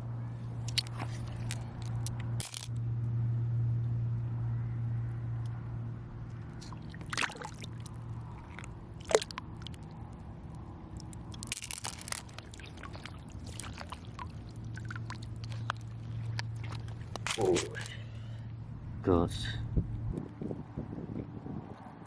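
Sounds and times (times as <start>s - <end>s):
steady low hum: 0.0s - 21.7s
shells and pebbles clicking: 0.7s - 2.8s, 10.9s - 13.1s
shallow water sloshing: 6.5s - 10.1s, 10.9s - 18.4s.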